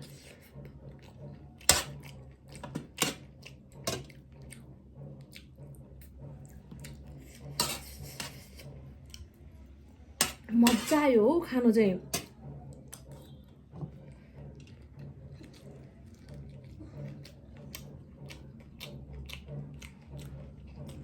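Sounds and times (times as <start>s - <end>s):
dishes and tableware clinking: 7.5s - 8.7s.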